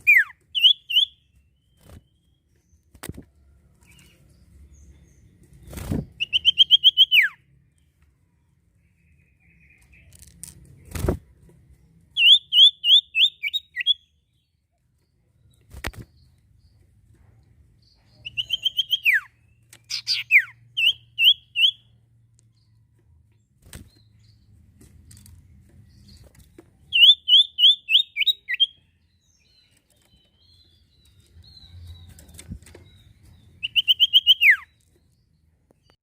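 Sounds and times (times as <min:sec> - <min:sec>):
songbird singing rapid chirps: 0:00.0 - 0:36.0.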